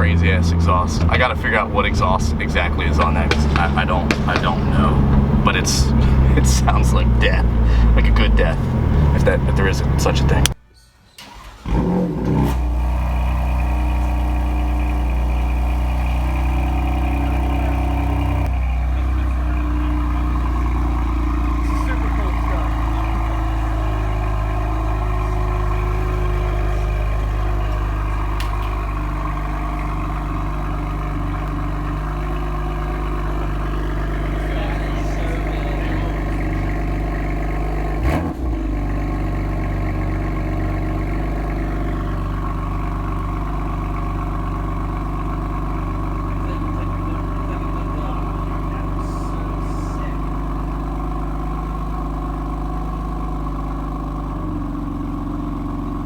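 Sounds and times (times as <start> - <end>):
car engine idling: 0.0 - 10.6, 11.2 - 56.0
sharp knock: 2.9 - 6.3.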